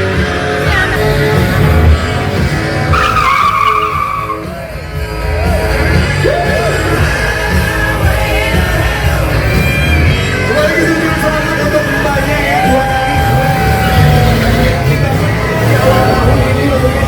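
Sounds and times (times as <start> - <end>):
music with bass beat: 0.0 - 17.0
tyres squealing: 2.9 - 4.5.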